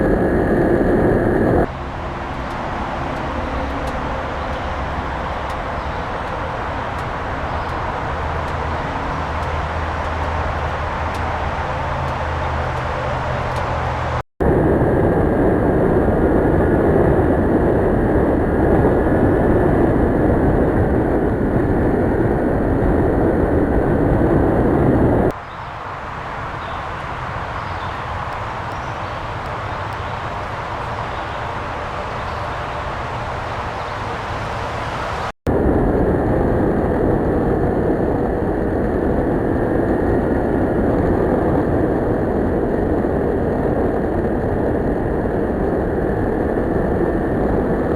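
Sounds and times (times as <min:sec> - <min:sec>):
wind and motorcycle road noise: 0:00.0 - 0:47.9.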